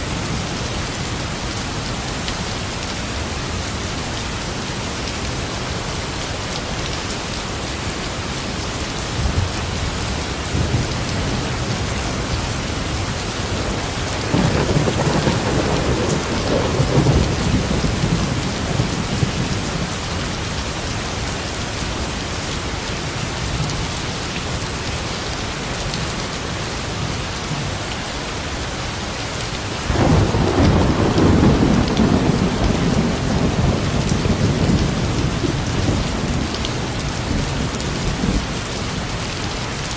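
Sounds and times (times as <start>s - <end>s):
steady rain falling: 0.0s - 39.9s
thunder rumbling: 12.9s - 20.0s, 29.9s - 38.5s.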